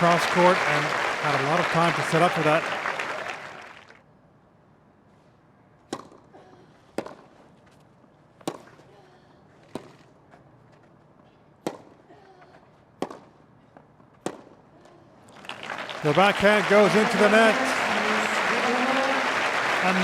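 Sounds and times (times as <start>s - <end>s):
tennis ball hit by rackets: 5.9s - 6.2s, 7.0s - 7.3s, 8.4s - 8.8s, 11.6s - 12.0s, 13.0s - 13.4s, 14.1s - 14.6s.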